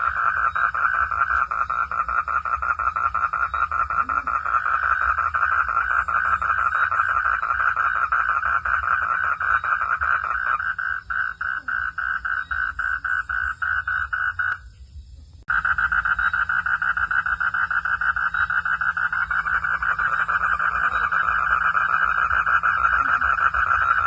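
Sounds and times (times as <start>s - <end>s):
frogs calling in pulsing trill: 0.0s - 24.0s
low steady rumble: 10.1s - 24.0s.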